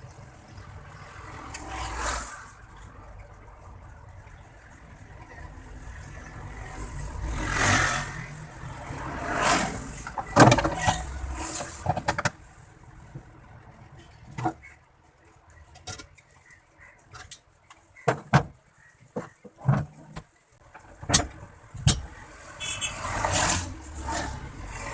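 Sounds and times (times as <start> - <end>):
road vehicles passing: 0.0 - 24.9
sharp clicks and knocks: 10.0 - 12.4, 15.7 - 22.2.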